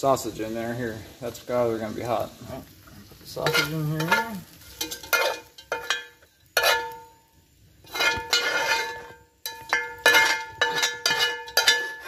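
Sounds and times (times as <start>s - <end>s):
metal utensil clanking on cast iron: 2.7s - 12.0s.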